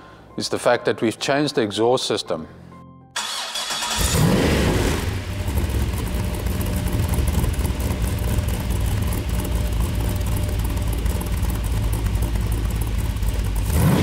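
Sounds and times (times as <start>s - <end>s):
car engine revving and idling: 3.8s - 14.0s.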